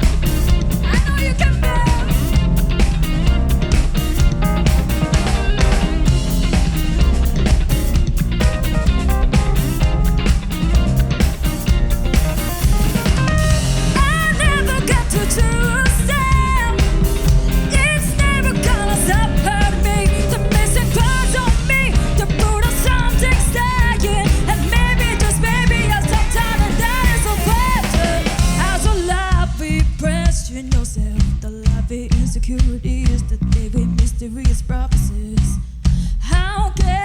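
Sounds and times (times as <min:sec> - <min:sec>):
lead guitar line bending pitch: 0:00.0 - 0:28.9
rock band playing live: 0:00.0 - 0:30.5
bass guitar: 0:00.0 - 0:37.0
drums: 0:00.0 - 0:37.0.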